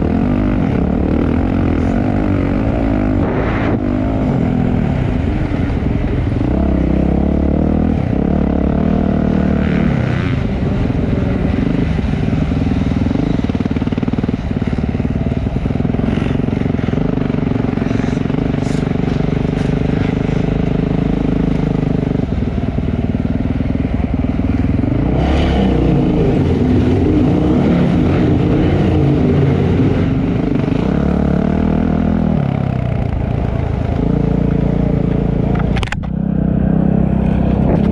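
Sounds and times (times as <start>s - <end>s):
dirt bike engine revving: 0.0s - 14.8s, 24.5s - 37.9s.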